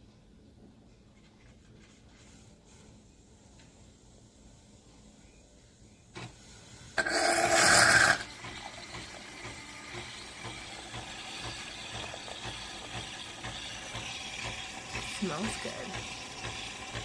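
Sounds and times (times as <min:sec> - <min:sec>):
espresso machine buzzing: 0:07.0 - 0:17.0.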